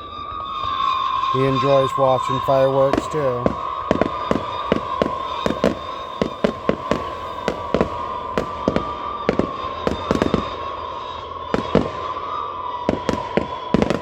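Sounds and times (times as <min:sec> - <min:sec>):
steady high-pitched tone: 0:00.0 - 0:10.7
fireworks bangs and cracks: 0:00.0 - 0:14.0.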